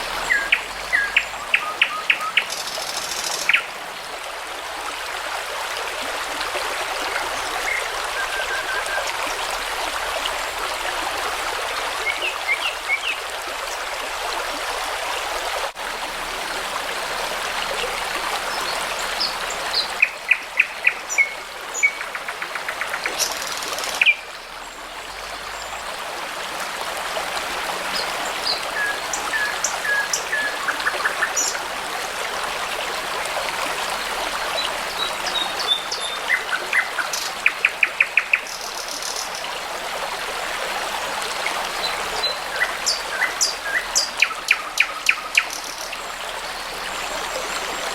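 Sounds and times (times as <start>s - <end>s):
songbirds calling: 0.0s - 3.8s, 18.5s - 25.9s, 28.0s - 31.7s, 34.0s - 39.5s, 41.3s - 47.9s
babbling brook: 0.0s - 47.9s.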